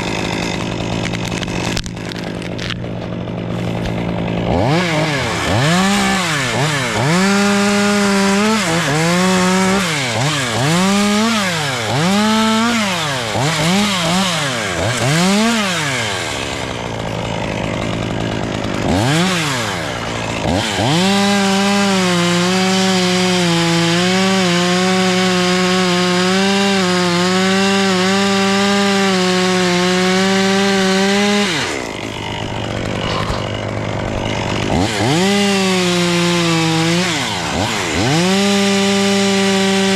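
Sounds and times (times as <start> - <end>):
two-stroke chainsaw revving: 0.0 - 39.9.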